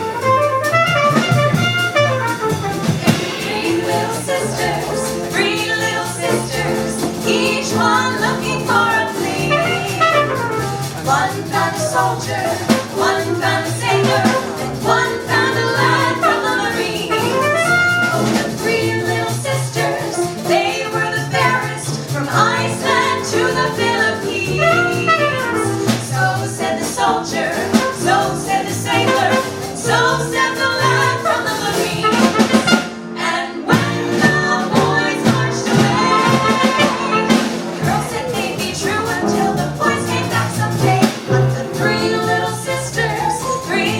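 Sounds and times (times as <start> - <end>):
live swing jazz band: 0.0 - 43.9.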